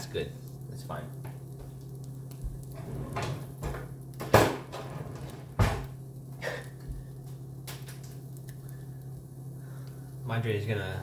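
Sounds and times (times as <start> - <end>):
steady low hum: 0.0 - 11.0
kitchen knocks: 3.2 - 5.9.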